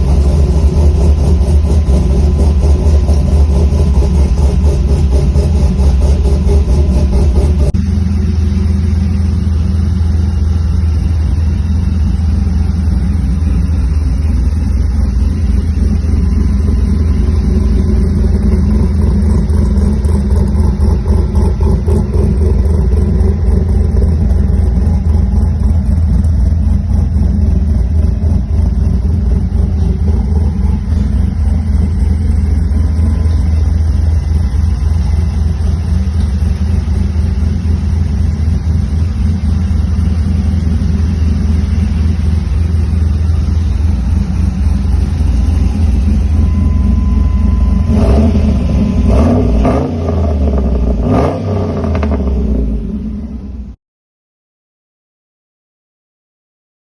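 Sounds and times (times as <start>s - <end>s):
engine rumbling: 0.0s - 53.8s.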